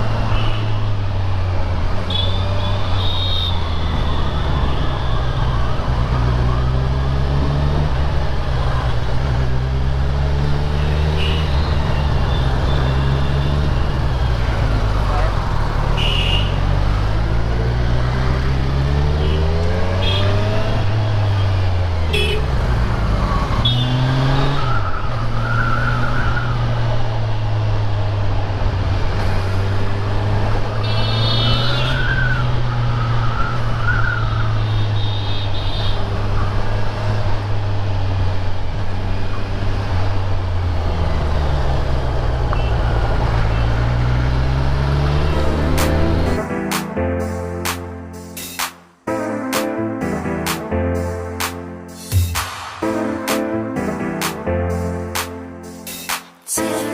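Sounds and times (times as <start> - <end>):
motorcycle engine revving: 5.8 - 24.8, 36.0 - 46.4.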